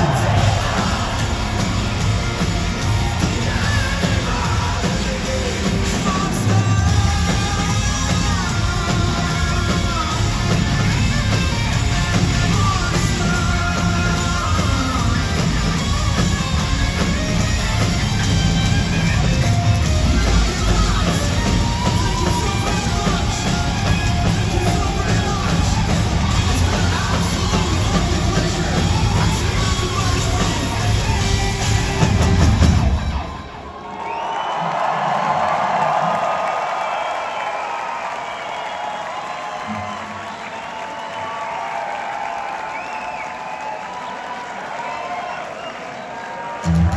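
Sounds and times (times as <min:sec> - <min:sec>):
sung and shouted vocals: 0:00.0 - 0:16.2, 0:19.9 - 0:37.1
rock band playing: 0:00.0 - 0:33.8, 0:46.6 - 0:46.9.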